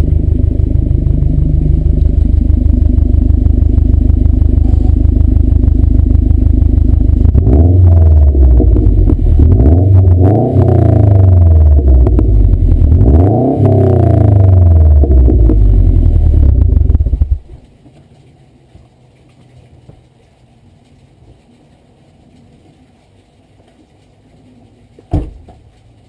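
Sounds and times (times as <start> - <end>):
car engine idling and revving: 0.0 - 17.6.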